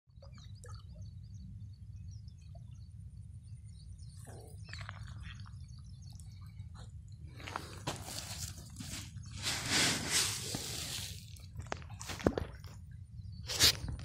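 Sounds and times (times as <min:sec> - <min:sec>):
small birds chirping: 0:00.2 - 0:11.6.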